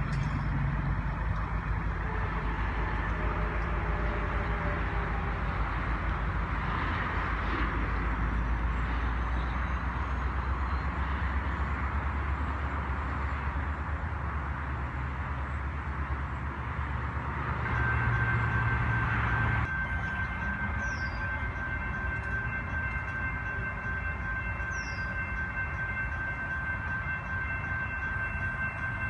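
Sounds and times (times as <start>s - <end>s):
freight train rumbling: 0.0s - 29.0s.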